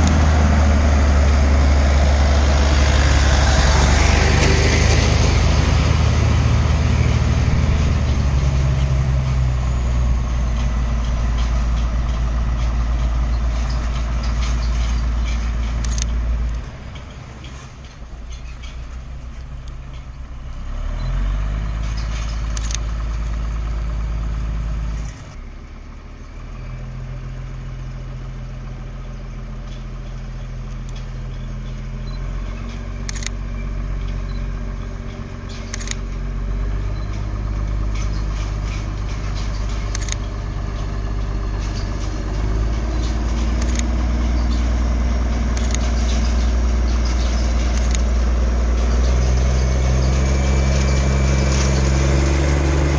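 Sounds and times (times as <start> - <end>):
diesel locomotive engine running: 0.0 - 52.9
sharp clicks: 10.6 - 20.3, 21.8 - 23.4, 29.8 - 33.4, 34.0 - 49.2.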